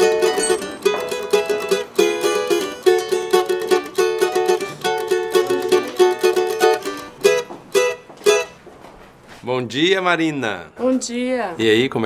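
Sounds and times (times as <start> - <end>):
plucked string instrument strumming: 0.0 - 8.6.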